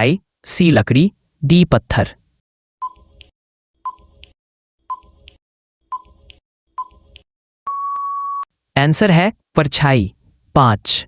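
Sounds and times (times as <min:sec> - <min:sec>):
countdown timer ticks: 0:03.9 - 0:08.4.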